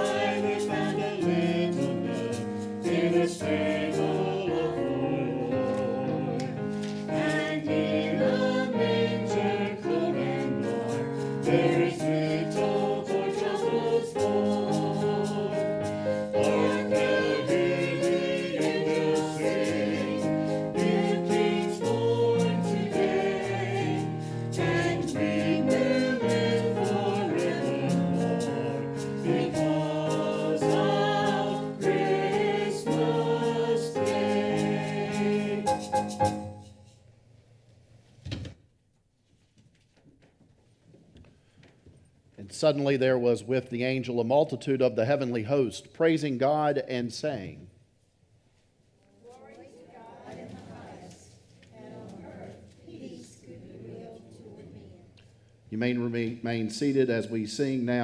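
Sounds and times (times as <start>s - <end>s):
church choir singing: 0.0s - 37.0s, 49.6s - 58.0s
instrumental accompaniment: 0.0s - 37.2s.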